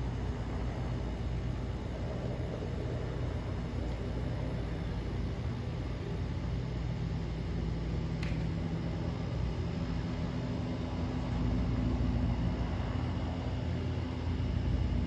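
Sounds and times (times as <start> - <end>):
helicopter rotor drone: 0.0 - 15.0.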